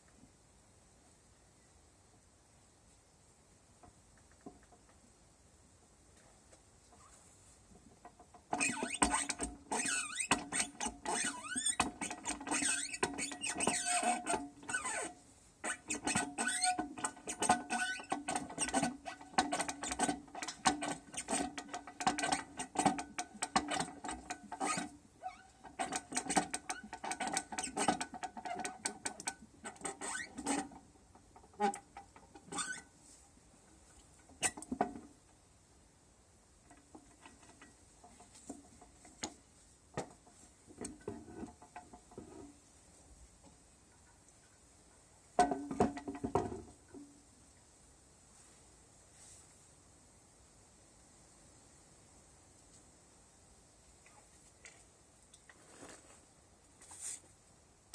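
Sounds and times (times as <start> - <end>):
metallic squeaks and creaks: 8.5 - 30.8, 31.4 - 32.9.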